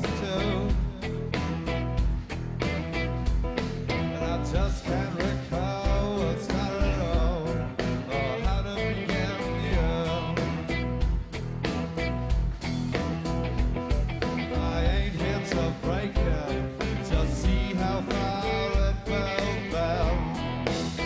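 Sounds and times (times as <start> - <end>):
person singing: 0.0 - 1.4, 3.9 - 11.0, 14.4 - 21.0
rock band playing live: 0.0 - 21.0.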